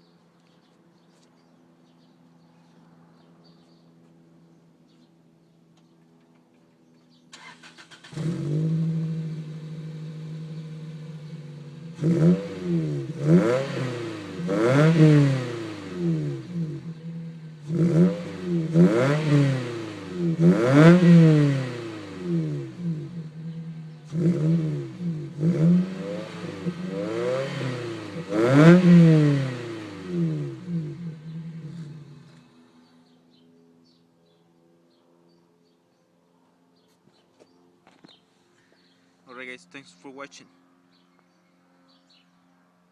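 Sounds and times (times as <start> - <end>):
car engine idling and revving: 5.8 - 33.2.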